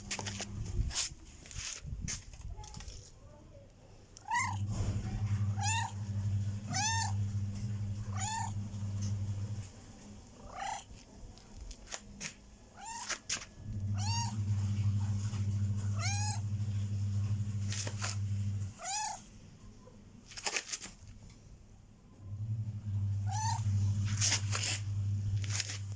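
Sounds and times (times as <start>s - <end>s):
cat meowing: 4.2s - 8.6s, 10.4s - 10.9s, 12.8s - 13.2s, 13.8s - 14.6s, 15.9s - 16.5s, 18.7s - 19.3s, 23.3s - 24.4s.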